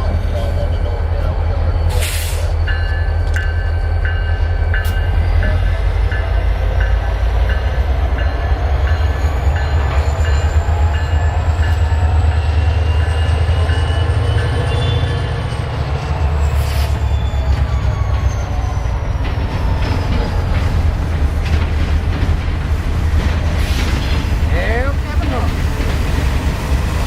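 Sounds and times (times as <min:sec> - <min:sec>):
low train rumble: 0:00.0 - 0:27.0
train wheels clicking over rail joints: 0:16.6 - 0:27.0.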